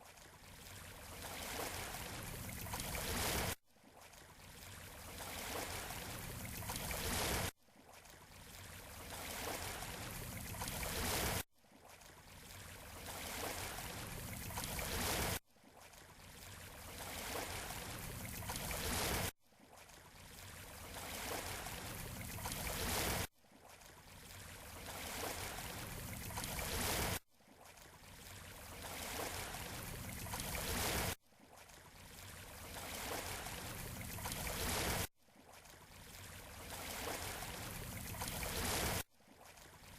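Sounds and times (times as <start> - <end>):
surf on beach: 32.8 - 35.1, 36.5 - 39.0.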